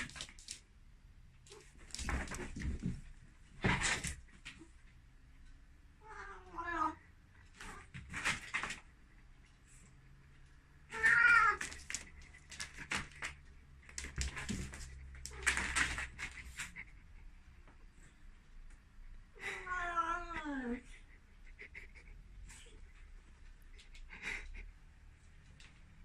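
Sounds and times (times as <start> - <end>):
cat meowing loudly: 6.0 - 7.0, 10.9 - 11.7.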